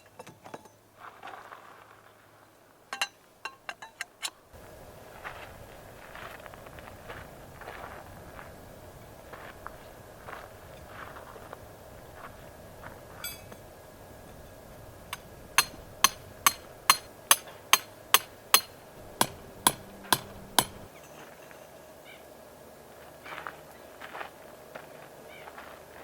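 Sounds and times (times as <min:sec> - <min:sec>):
hammer strikes: 0:13.2 - 0:13.6, 0:15.1 - 0:20.9.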